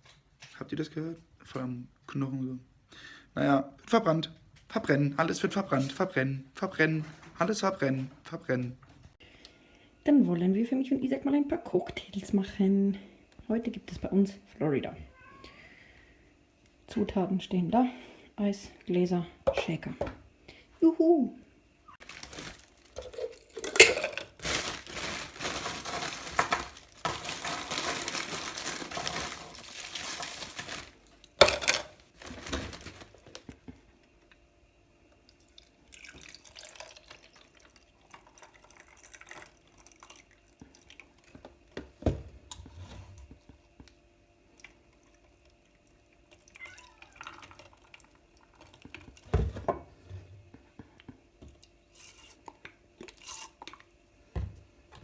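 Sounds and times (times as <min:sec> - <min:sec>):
liquid and ice pouring: 0:22.0 - 0:33.3, 0:35.4 - 0:41.2, 0:45.0 - 0:49.3
glasses and bottles clinking: 0:23.0 - 0:24.4, 0:31.4 - 0:31.9.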